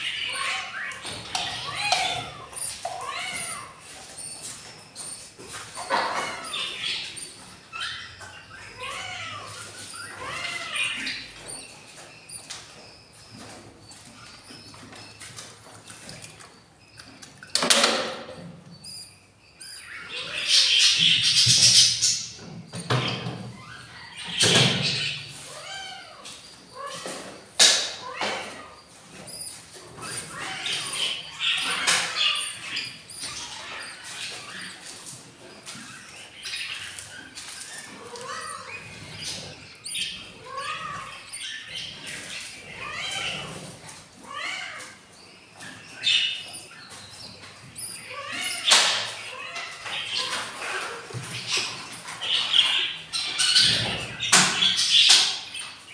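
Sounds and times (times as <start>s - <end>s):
raspy budgie chatter: 0.0s - 17.5s, 18.8s - 43.7s, 44.3s - 55.8s
budgies chirping: 0.0s - 55.9s.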